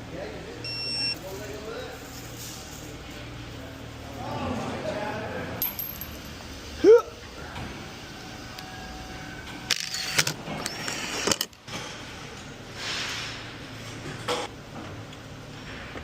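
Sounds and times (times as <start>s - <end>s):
metallic knocks and clinks: 5.6s - 6.4s.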